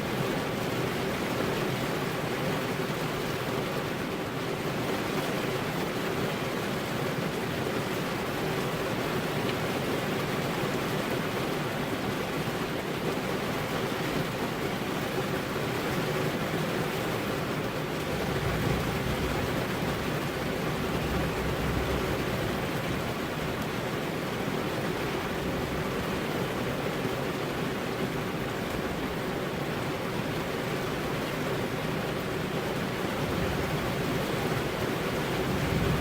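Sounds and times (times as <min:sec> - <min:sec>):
heavy rain: 0:00.0 - 0:36.0.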